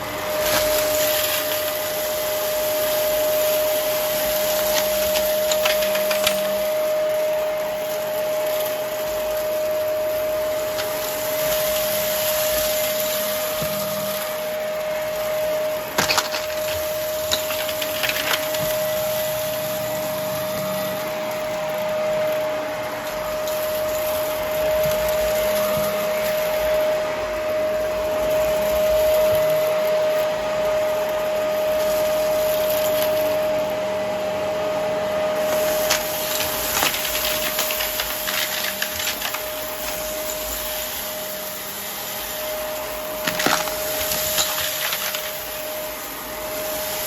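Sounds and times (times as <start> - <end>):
debris clicking in vacuum: 0.0 - 33.9, 35.3 - 47.0
vacuum cleaner running: 0.0 - 47.0.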